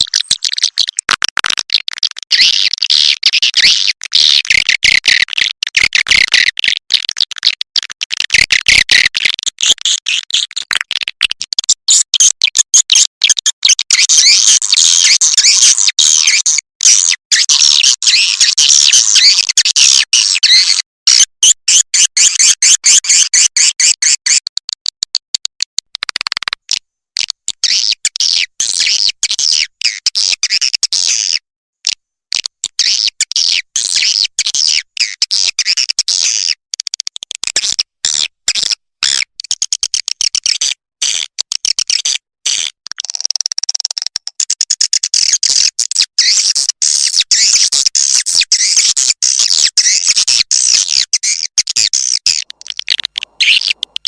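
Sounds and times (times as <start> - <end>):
recorded swiftlet twittering: 0.0 - 1.0, 51.3 - 54.0.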